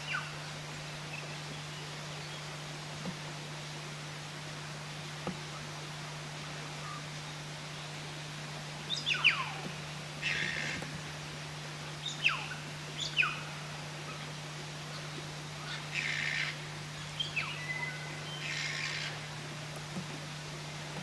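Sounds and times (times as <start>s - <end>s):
steady low hum: 0.0s - 21.0s
bird chattering calls: 17.2s - 19.2s.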